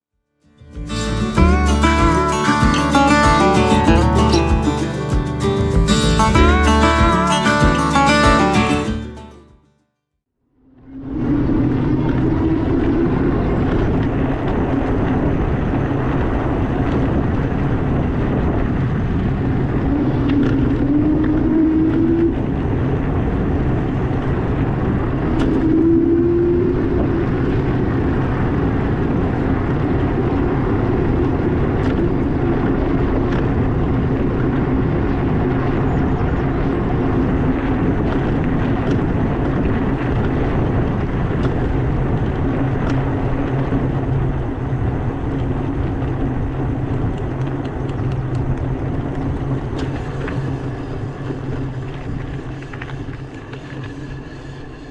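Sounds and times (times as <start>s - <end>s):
e-bike riding and wind noise: 0.6s - 8.9s, 10.7s - 54.9s.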